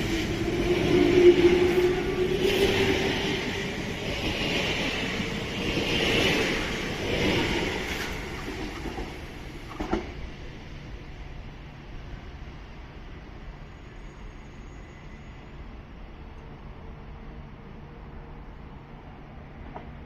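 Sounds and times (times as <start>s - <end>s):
train wheel noise: 0.0s - 10.6s.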